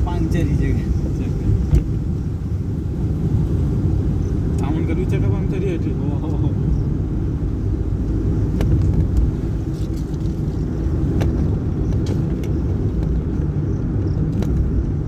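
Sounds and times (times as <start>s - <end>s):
engine and road rumble: 0.0s - 15.0s.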